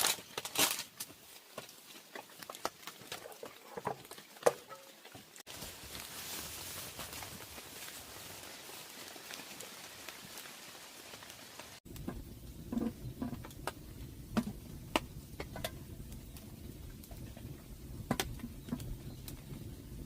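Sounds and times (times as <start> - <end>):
steady rain hiss: 5.4 - 20.0
low rumble: 11.9 - 20.0.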